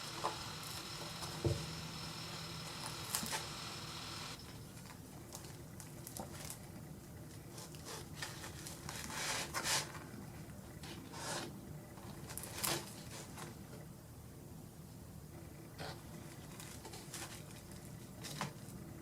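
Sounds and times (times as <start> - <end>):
rustles and scrapes of handling: 4.8 - 13.8, 15.8 - 18.8.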